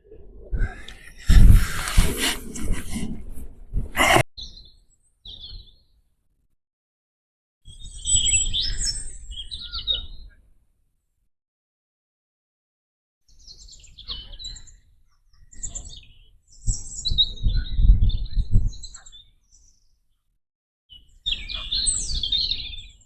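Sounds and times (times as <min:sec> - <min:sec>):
songbird chirping and singing: 0:04.4 - 0:06.0, 0:07.7 - 0:10.4, 0:13.3 - 0:20.2, 0:20.9 - 0:23.0.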